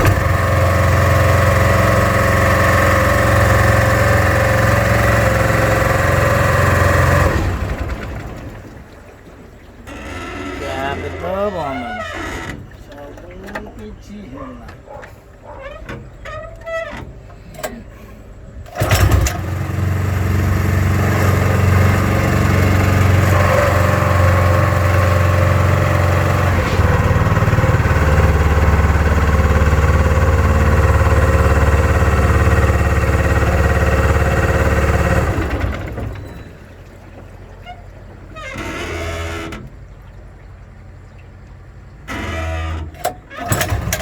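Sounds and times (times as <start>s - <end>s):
small petrol engine running: 18.7s - 36.1s.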